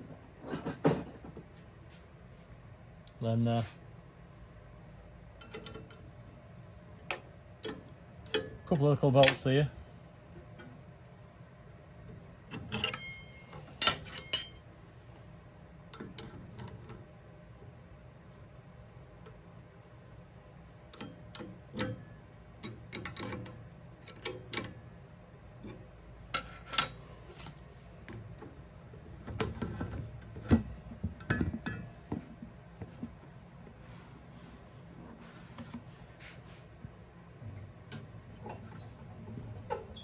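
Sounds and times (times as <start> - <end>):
metal tools clinking and knocking: 5.4 - 6.0, 12.5 - 14.6.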